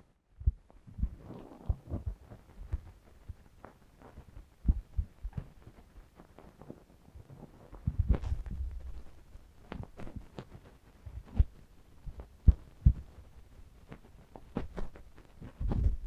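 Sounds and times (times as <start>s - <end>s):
dull low thumps: 0.3s - 3.4s, 4.6s - 5.6s, 7.8s - 9.2s, 15.6s - 16.0s
rubbing against microphone: 0.7s - 16.0s.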